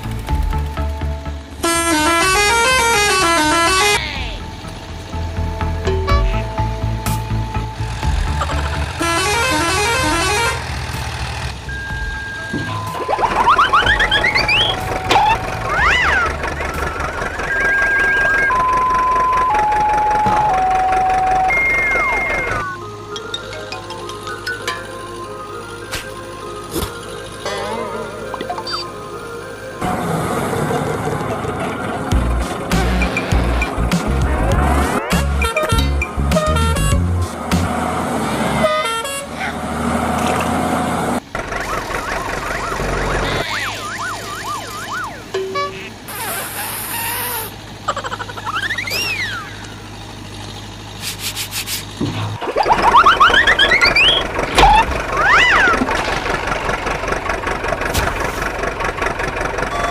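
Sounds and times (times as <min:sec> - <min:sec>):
cartoon vehicle sound: 0:07.8 - 0:11.5, 0:12.1 - 0:59.9
falling slide whistle glide: 0:12.9 - 0:16.3, 0:48.6 - 0:49.6, 0:52.6 - 0:55.8
siren-like wail: 0:12.9 - 0:22.8, 0:41.6 - 0:45.4, 0:52.6 - 0:55.9
light music: 0:22.6 - 0:30.0
short musical blips: 0:52.4 - 0:55.6
electronic tone stepping down: 0:52.4 - 0:55.7.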